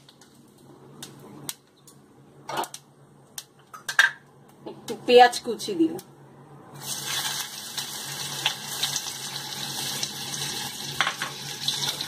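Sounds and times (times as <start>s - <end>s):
onion sizzling in hot oil: 6.7s - 12.0s.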